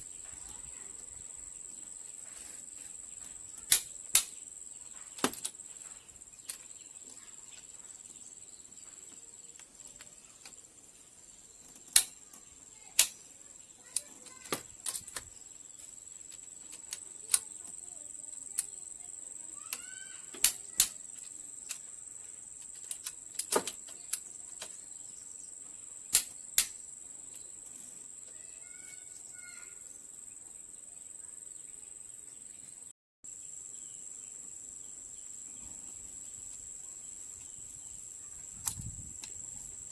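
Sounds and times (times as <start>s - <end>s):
insect drone: 0.0s - 32.7s, 33.3s - 39.9s
hand tools clicking on metal: 3.6s - 4.3s, 11.8s - 12.2s, 13.0s - 13.2s, 13.9s - 15.3s, 19.7s - 21.9s, 22.6s - 24.8s, 26.1s - 26.8s.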